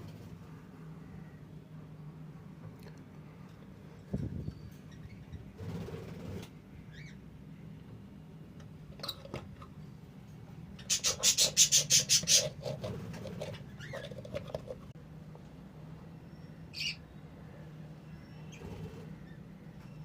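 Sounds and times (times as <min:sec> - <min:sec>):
budgerigars chirping: 0:10.8 - 0:12.6.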